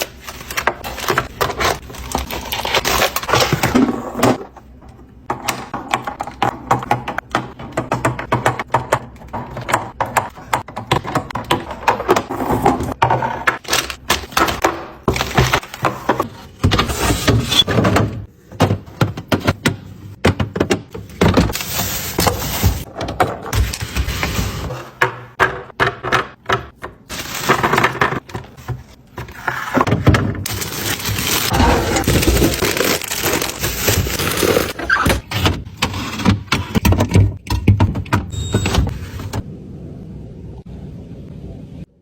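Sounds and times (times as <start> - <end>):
containers clicking and clattering: 24.8 - 38.3.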